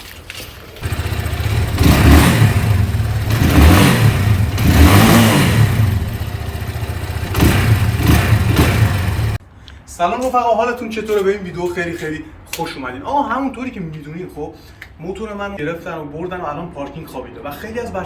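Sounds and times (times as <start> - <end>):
motorcycle engine revving: 0.8 - 9.4.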